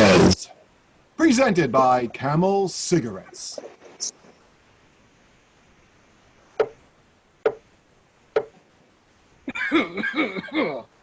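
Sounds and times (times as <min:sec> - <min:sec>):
man speaking: 0:00.0 - 0:00.5, 0:01.2 - 0:03.6.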